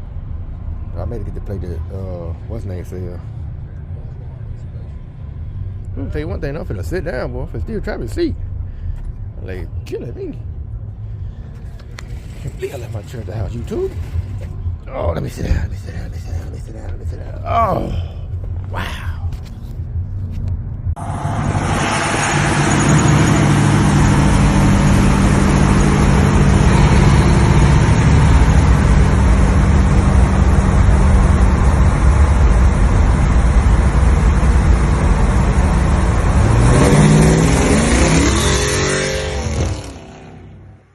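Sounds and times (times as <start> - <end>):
vehicle engine revving: 21.0 - 40.9.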